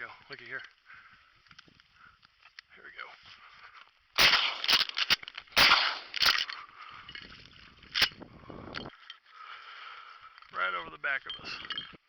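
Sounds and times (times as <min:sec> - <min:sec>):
shotgun blasts: 0:04.2 - 0:06.5.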